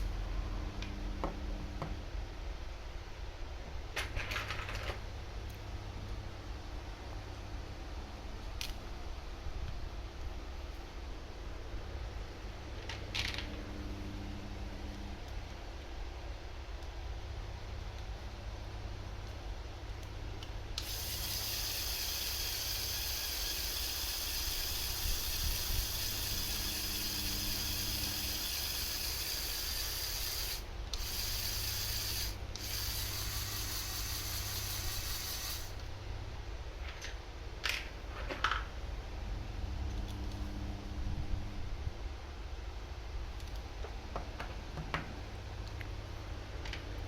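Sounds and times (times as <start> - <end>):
constant low hum: 0.0 - 47.0
steady hiss: 20.8 - 35.9.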